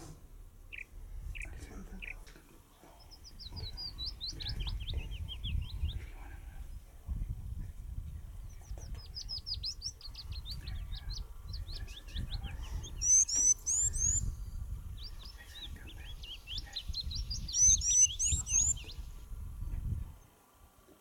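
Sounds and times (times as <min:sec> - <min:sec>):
low rumble: 0:00.0 - 0:13.1
songbirds chirping: 0:00.0 - 0:21.0
bird whistles: 0:12.0 - 0:14.4, 0:16.4 - 0:18.9.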